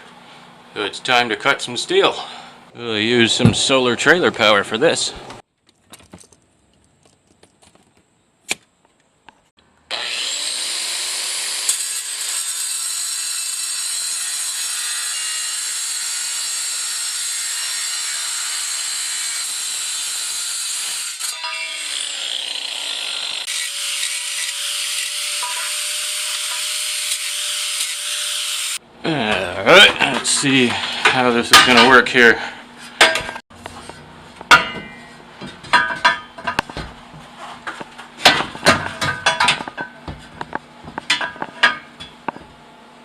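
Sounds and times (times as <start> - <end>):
power tool cutting steel: 9.9 - 28.8.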